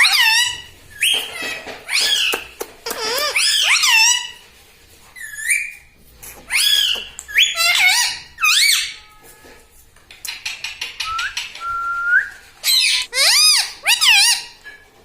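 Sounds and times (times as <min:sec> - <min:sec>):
parakeet whistling calls: 0:11.0 - 0:14.5.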